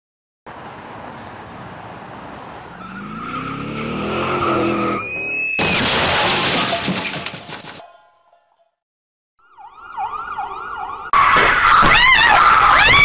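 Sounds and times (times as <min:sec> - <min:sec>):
car engine revving: 0:02.7 - 0:05.0
tyre squeal: 0:02.8 - 0:05.8.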